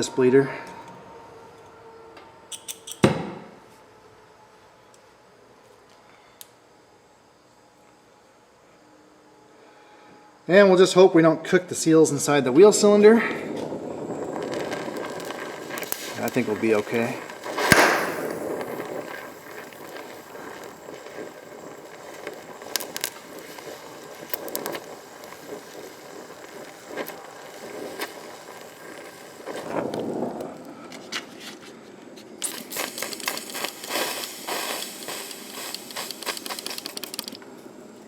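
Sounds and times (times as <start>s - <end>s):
electric welder crackling: 13.5s - 30.5s, 32.4s - 37.6s.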